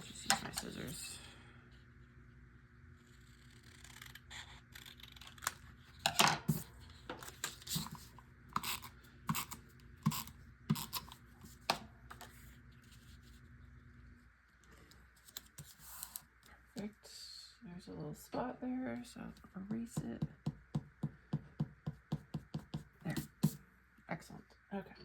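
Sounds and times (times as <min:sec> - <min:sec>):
scissors snipping paper: 0:03.4 - 0:05.7.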